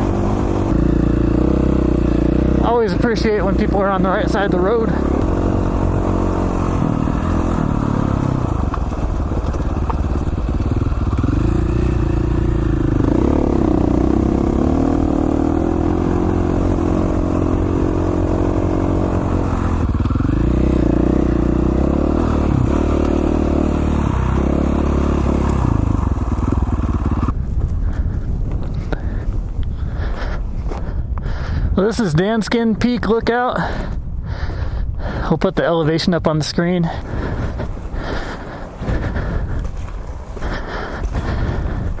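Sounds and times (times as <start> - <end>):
dirt bike engine revving: 0.0 - 27.4.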